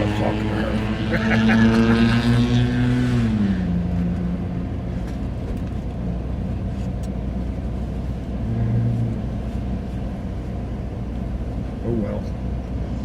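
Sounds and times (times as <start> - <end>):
car engine idling: 3.6 - 13.0.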